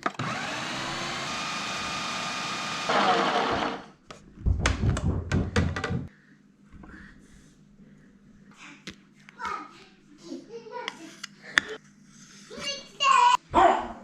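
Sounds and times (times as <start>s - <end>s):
blender motor running: 0.0s - 4.0s
knocks and clatter: 4.4s - 6.1s.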